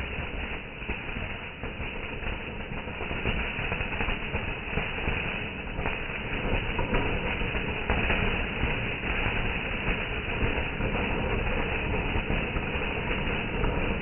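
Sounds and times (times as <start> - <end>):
fireworks crackling and rumbling: 0.0 - 14.0.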